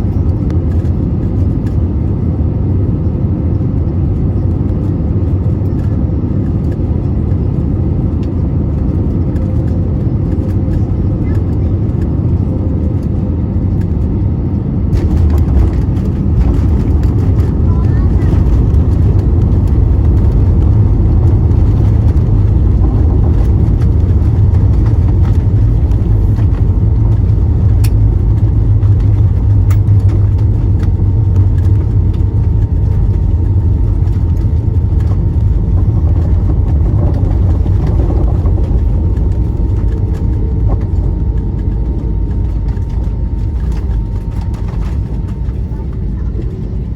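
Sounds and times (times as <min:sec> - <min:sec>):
aircraft engines rumbling: 0:00.0 - 0:46.9
wheels on runway: 0:14.9 - 0:46.0.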